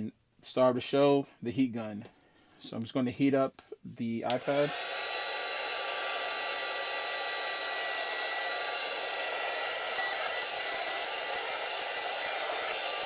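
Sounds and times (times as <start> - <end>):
heat gun blowing hot air: 4.3 - 13.0.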